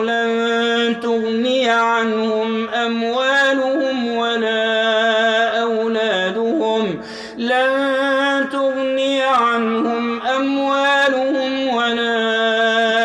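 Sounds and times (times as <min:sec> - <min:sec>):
man reciting melodically: 0:00.0 - 0:13.0
intake of breath: 0:07.0 - 0:07.4.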